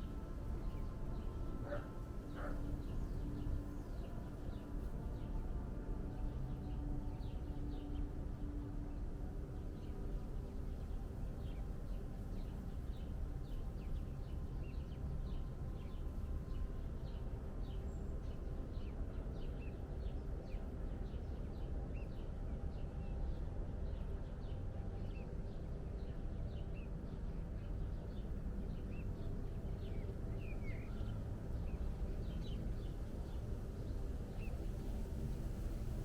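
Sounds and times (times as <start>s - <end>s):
low background rumble: 0.0s - 36.0s
small birds chirping: 25.0s - 36.0s.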